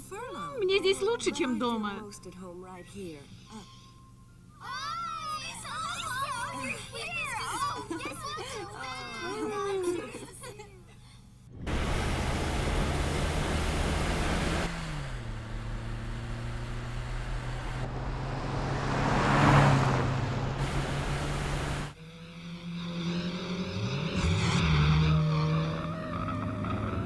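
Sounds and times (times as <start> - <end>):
cartoon car engine running: 11.6 - 19.4.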